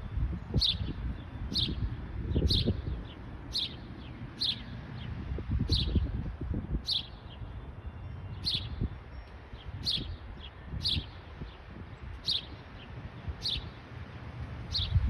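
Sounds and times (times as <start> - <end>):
bird chirping sharply: 12.2 - 12.6.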